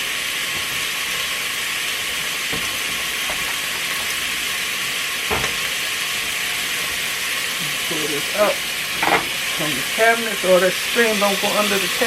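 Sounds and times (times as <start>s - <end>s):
meat sizzling: 0.0s - 12.0s.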